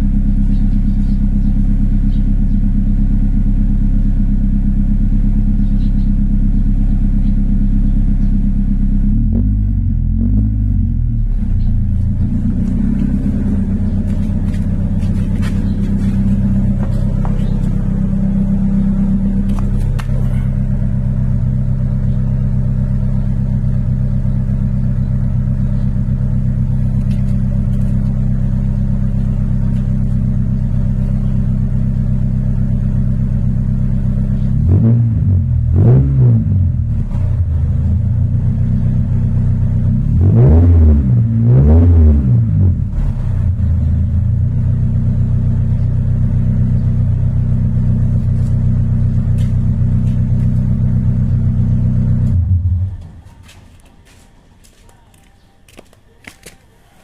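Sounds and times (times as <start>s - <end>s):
car engine idling: 0.0s - 40.6s, 42.4s - 55.0s
engine revving: 9.0s - 44.3s, 45.0s - 53.3s.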